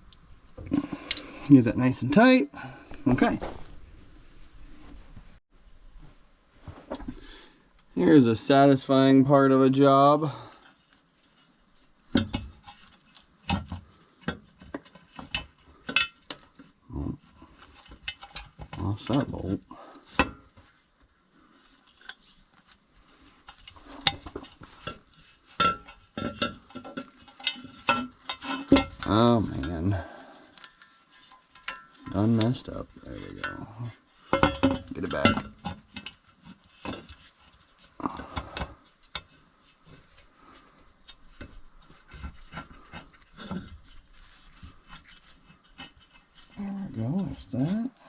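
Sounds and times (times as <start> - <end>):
metal tools clinking and scraping: 14.2 - 20.8, 23.2 - 47.9.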